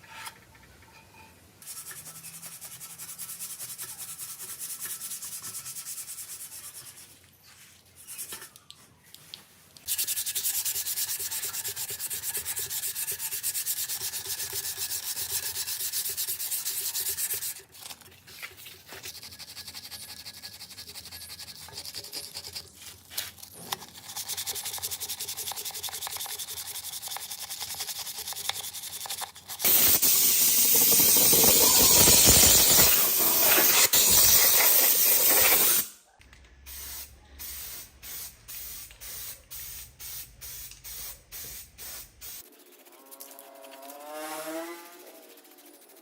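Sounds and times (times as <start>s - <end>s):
abrasive rubbing on rusty metal: 1.0s - 8.6s
loud steady hiss: 29.7s - 35.9s.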